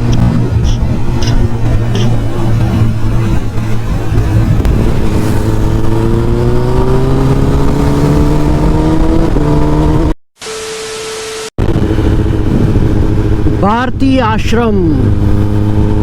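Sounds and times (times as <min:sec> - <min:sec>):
motorcycle engine under throttle: 0:00.0 - 0:10.1, 0:11.6 - 0:16.0
wind and road noise: 0:00.0 - 0:16.0.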